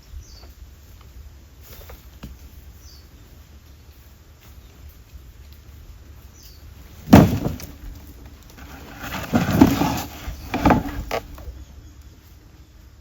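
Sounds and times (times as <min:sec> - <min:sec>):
clattering knocks: 0:07.1 - 0:08.0, 0:08.6 - 0:11.4.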